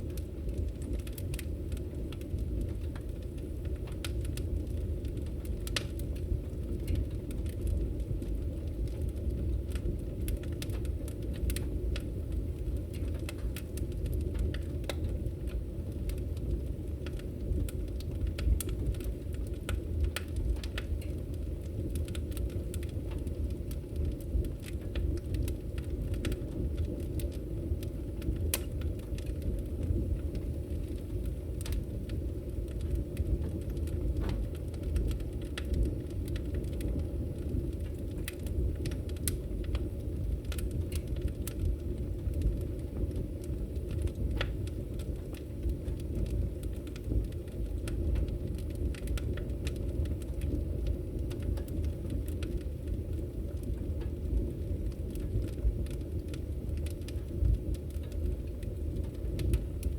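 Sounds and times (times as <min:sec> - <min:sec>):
fire crackling and popping: 0:00.0 - 0:59.9
low rumble of flames: 0:00.0 - 0:59.9.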